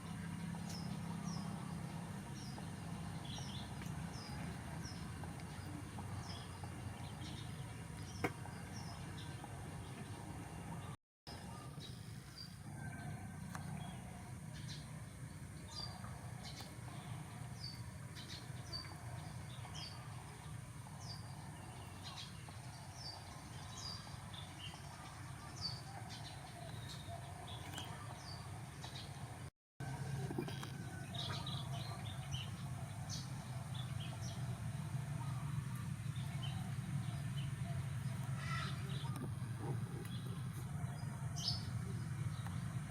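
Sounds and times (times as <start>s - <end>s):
steady low hum: 0.0s - 42.9s
small birds chirping: 13.8s - 42.9s.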